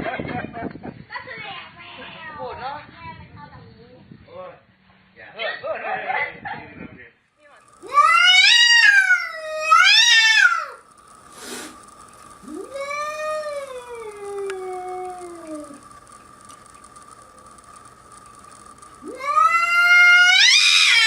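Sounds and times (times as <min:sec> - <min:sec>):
cat yowling: 0:07.8 - 0:10.8, 0:12.4 - 0:15.8, 0:19.0 - 0:21.0.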